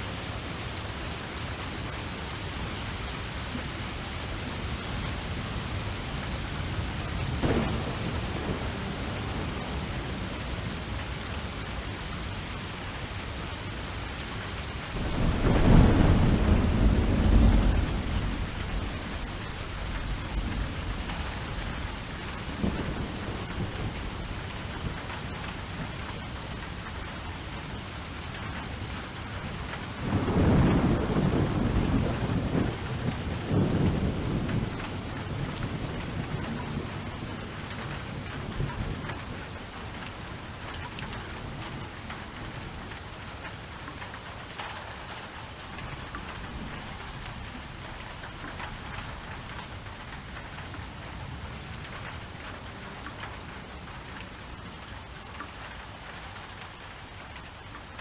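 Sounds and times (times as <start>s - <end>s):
steady rain: 0.0s - 58.0s
thunder rumbling: 6.5s - 11.3s, 14.9s - 25.8s, 29.9s - 39.4s.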